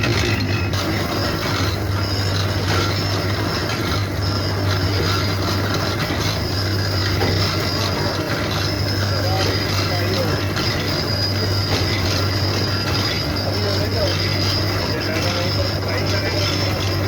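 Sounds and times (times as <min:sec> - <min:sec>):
machinery humming and clattering: 0:00.0 - 0:17.0.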